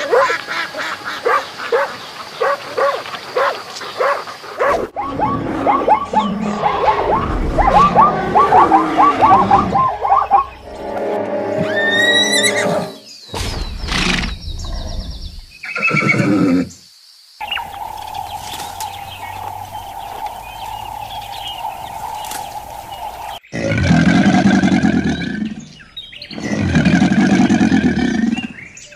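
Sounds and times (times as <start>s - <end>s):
horse whinnying: 11.6s - 13.0s, 15.7s - 16.7s
faint chirps: 11.7s - 23.6s
animal sounds: 17.4s - 28.9s.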